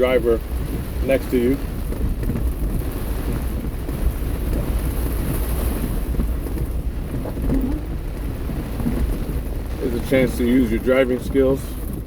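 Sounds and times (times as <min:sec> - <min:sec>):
heavy rain on car roof: 0:00.0 - 0:12.0
low car rumble: 0:00.0 - 0:12.0.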